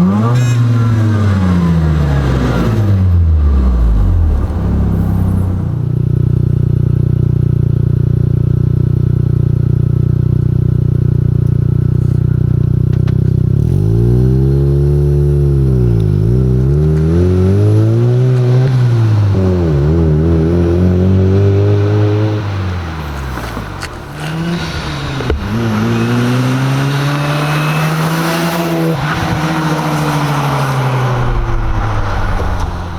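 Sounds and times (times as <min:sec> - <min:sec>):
rotary engine revving: 0:00.0 - 0:06.1, 0:13.5 - 0:32.9.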